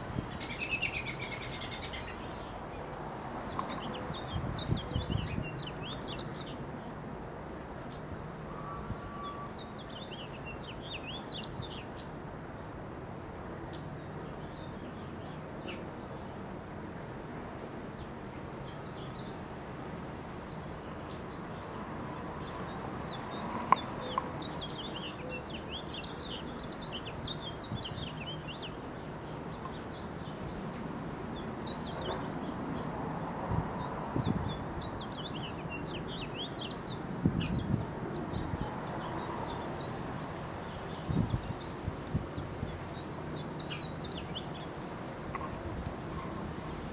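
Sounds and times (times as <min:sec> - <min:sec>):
birds chirping: 0:22.4 - 0:40.0.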